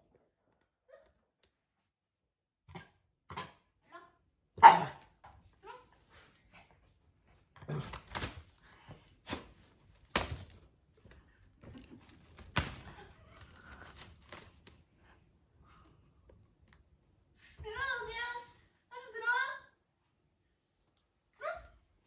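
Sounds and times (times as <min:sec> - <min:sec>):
plastic crinkling and rustling: 0:07.8 - 0:10.7, 0:11.7 - 0:14.9.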